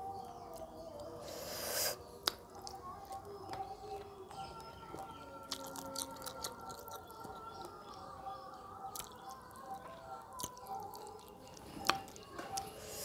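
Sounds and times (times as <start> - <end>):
faint steady background tones: 0.0 - 13.0
wet chewing and sucking: 5.0 - 7.8, 10.3 - 13.0.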